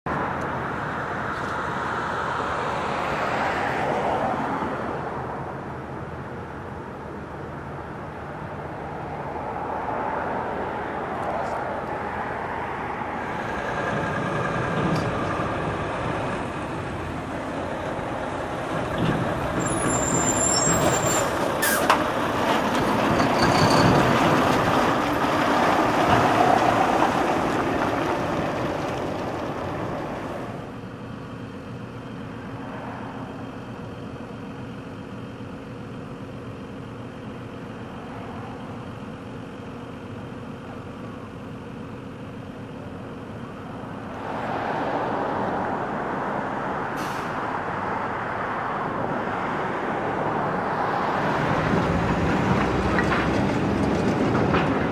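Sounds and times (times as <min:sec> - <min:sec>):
steady engine drone: 0:04.9 - 0:19.6, 0:23.8 - 0:44.4
heavy diesel machine running: 0:11.8 - 0:32.6, 0:33.2 - 0:44.2, 0:50.1 - 0:54.9.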